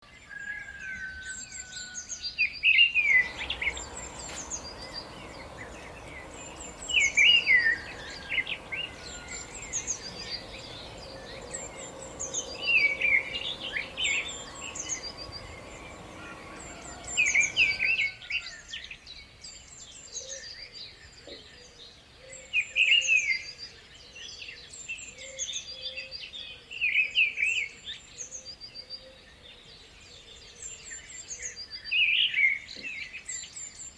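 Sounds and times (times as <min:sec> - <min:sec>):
songbirds singing: 0:02.7 - 0:18.2
high bird chirps: 0:03.0 - 0:18.1
steady background rush: 0:03.1 - 0:18.0.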